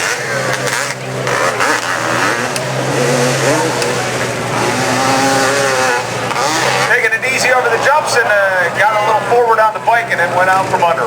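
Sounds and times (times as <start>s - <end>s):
motorcycle engine revving: 0.0s - 8.8s.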